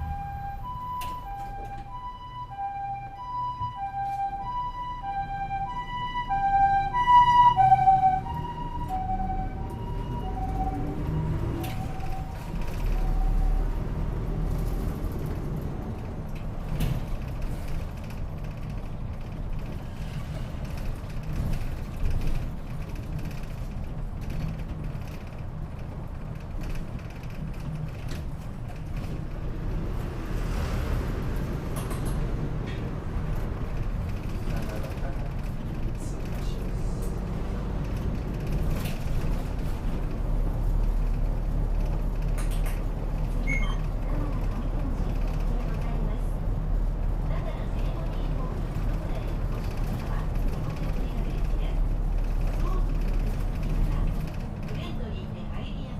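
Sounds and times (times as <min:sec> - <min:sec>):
ambulance two-tone siren: 0:00.0 - 0:13.9
bus engine and road noise: 0:00.0 - 0:55.9.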